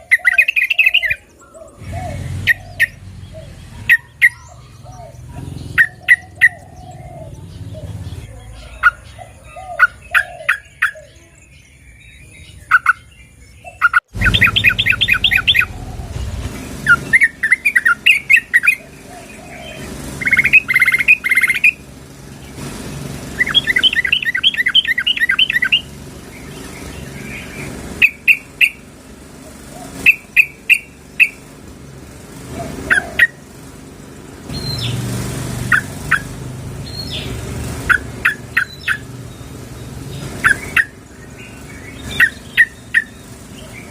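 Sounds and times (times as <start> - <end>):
bird bubbly chattering calls: 0.0 - 8.2, 12.7 - 21.8, 23.4 - 28.8, 29.7 - 31.4, 35.7 - 39.1, 40.1 - 43.9.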